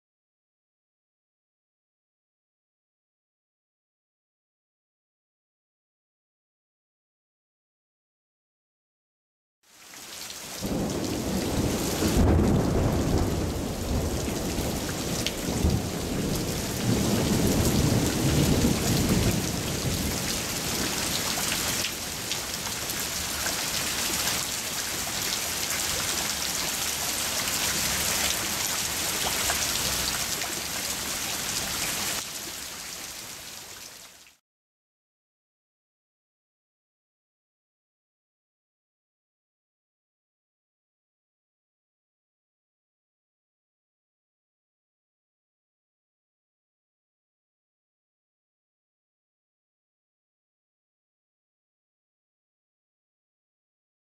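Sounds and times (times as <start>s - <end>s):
hard rain pattering on wood and leaves: 9.7s - 34.4s.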